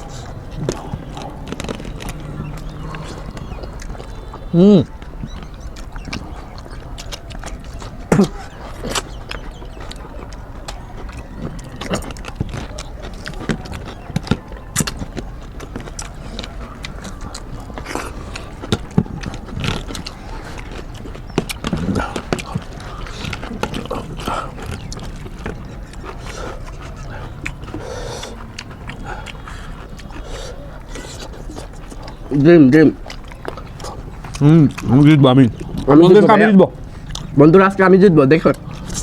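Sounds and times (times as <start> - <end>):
people chewing and lip-smacking: 0.0 - 39.0.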